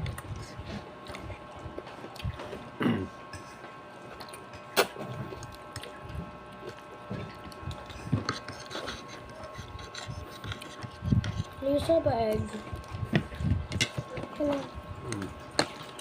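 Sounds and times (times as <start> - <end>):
faint steady hum: 0.0 - 16.0
soft chewing and mouth noises: 0.0 - 16.0.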